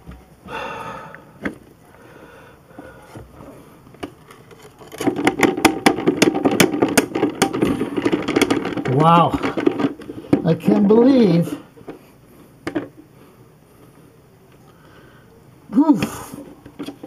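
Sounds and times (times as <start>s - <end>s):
rapid knocks and rattles: 4.6s - 10.8s.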